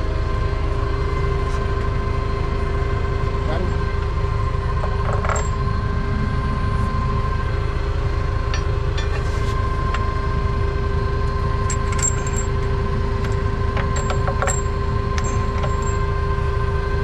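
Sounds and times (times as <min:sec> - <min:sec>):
heavy equipment engine idling: 0:00.0 - 0:17.0.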